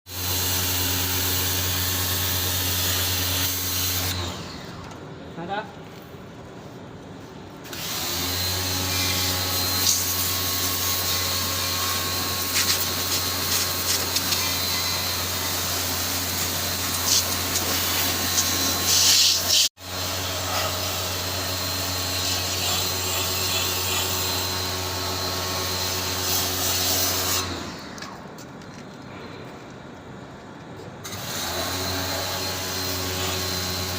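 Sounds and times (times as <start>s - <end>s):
electric power tool motor humming: 7.7s - 27.9s.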